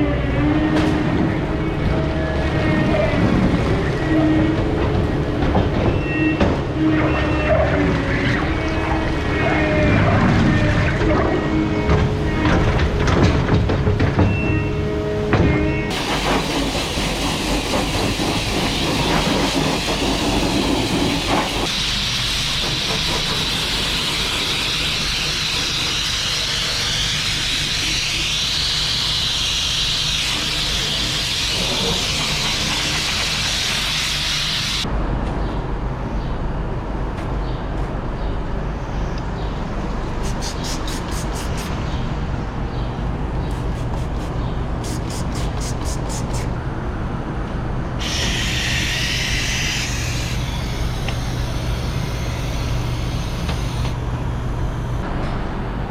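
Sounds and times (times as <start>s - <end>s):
loud hissing rush: 15.9s - 34.8s, 40.1s - 42.0s, 43.6s - 46.6s, 48.0s - 53.9s.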